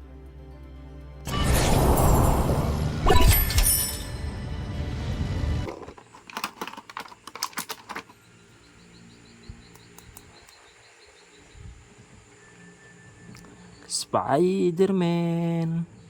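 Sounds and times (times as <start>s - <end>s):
sharp light clicks and taps: 9.5s - 10.6s.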